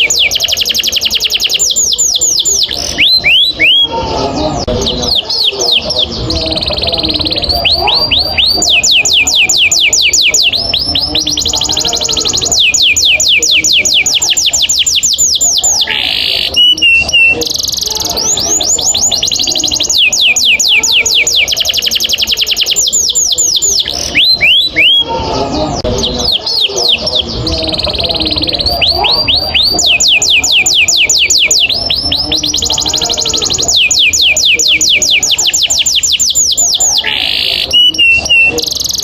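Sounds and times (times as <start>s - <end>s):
canary singing trills: 0.0s - 39.0s.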